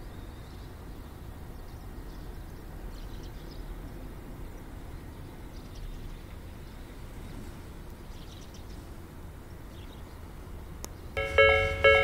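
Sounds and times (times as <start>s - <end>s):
distant train rumbling: 11.2s - 12.0s.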